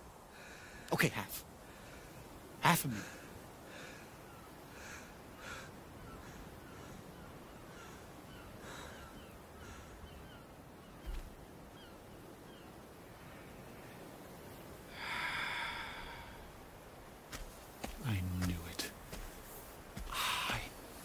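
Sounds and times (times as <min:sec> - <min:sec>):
caw-like bird cries: 0:03.8 - 0:10.4
small falling bird chirps: 0:10.0 - 0:12.7.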